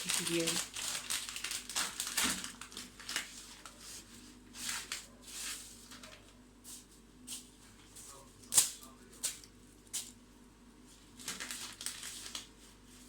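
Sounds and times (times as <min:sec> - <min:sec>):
plastic packet crinkling: 0:00.0 - 0:03.8, 0:11.1 - 0:12.6.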